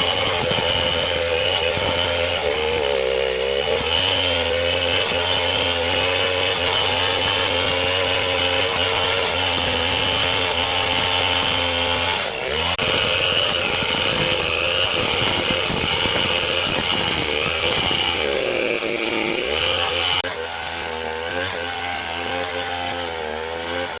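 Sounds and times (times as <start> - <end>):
chainsaw cutting tree: 0.0 - 24.0.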